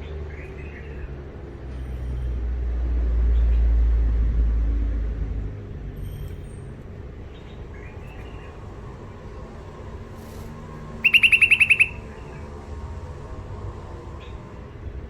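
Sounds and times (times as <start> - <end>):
faint bird call: 11.0 - 12.2.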